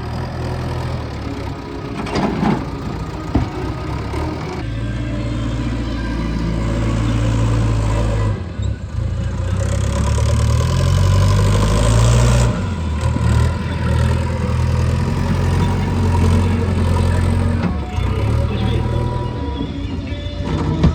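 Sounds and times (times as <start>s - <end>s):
diesel engine droning: 0.0s - 20.9s.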